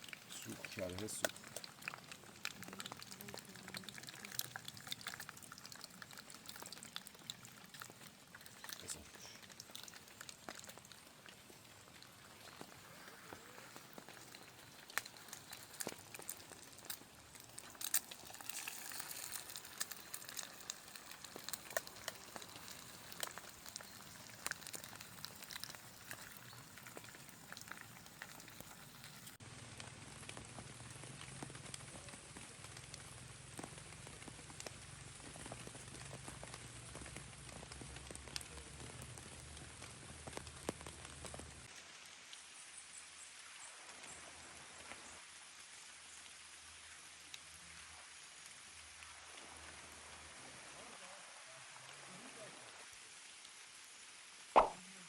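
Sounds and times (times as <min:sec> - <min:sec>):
sharp pops and crackles: 0:00.0 - 0:41.7, 0:54.6 - 0:54.9
eggs sizzling in a pan: 0:00.0 - 0:54.8.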